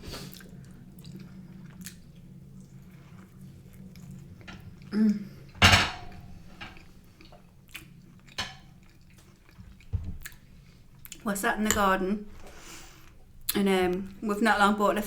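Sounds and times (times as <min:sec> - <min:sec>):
cutlery and crockery clinking: 0:05.6 - 0:06.8, 0:08.4 - 0:08.7.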